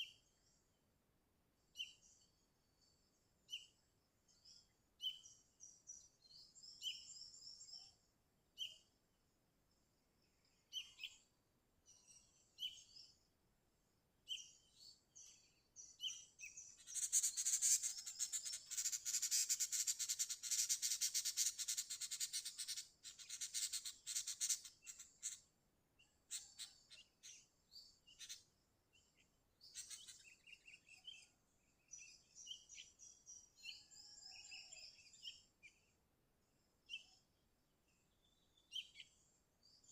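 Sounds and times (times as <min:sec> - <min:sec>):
bird chirping and chattering: 0:16.0 - 0:25.5, 0:26.3 - 0:28.4, 0:29.6 - 0:31.0.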